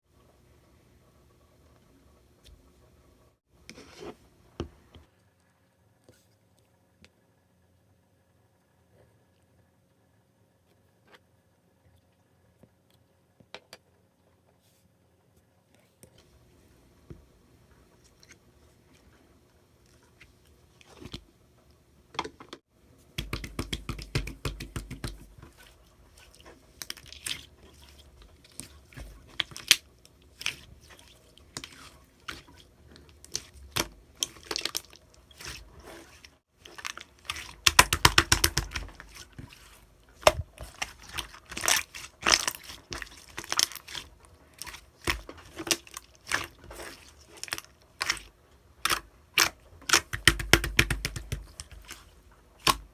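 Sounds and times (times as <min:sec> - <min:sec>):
wet clicks and pops: 0:23.2 - 0:25.3, 0:36.7 - 0:39.5, 0:48.8 - 0:52.0, 0:52.6 - 0:52.9
slime squishing and stretching: 0:23.2 - 0:52.9.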